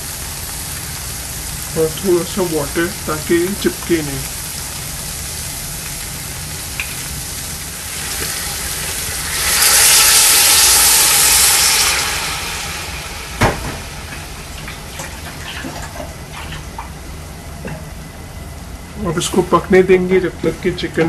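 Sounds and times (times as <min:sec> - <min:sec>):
chicken frying in a pot: 0:00.0 - 0:17.1
water hissing in hot pan: 0:00.0 - 0:17.1.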